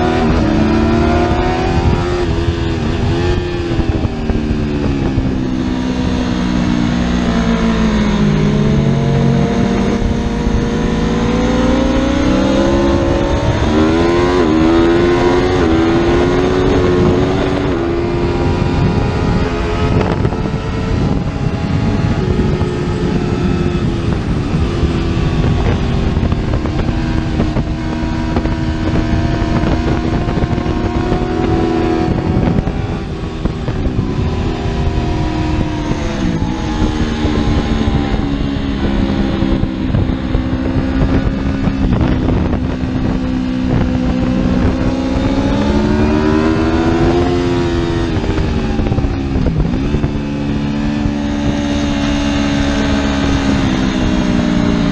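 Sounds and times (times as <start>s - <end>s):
motorcycle engine running hard: 0.0s - 54.9s
wind rumble on microphone: 0.0s - 54.9s.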